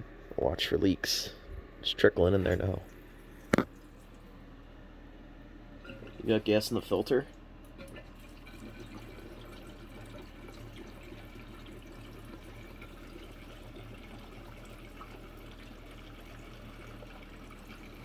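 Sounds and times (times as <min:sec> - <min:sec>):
low steady hum: 0:00.0 - 0:18.0
fuel pouring into tank: 0:05.8 - 0:18.0.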